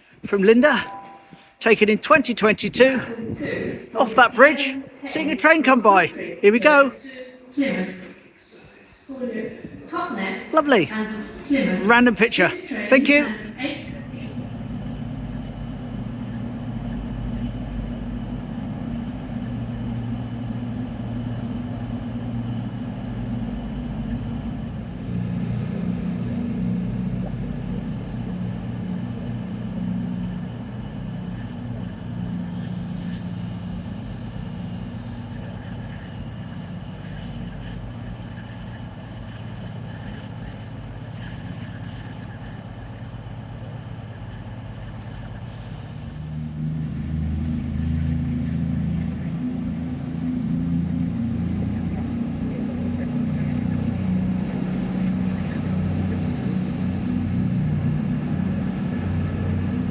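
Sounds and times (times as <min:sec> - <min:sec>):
train engine hum: 0:00.0 - 0:59.9
constant rumble: 0:13.3 - 0:59.9.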